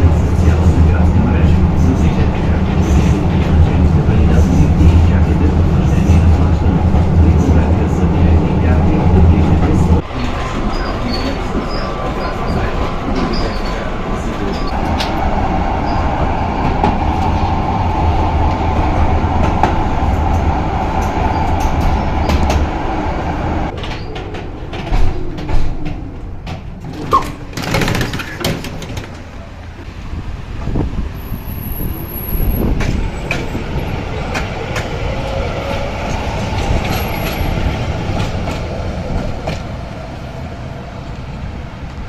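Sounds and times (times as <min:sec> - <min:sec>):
tram hum and whine: 0:00.0 - 0:42.0
knocks and clatter: 0:23.7 - 0:29.3.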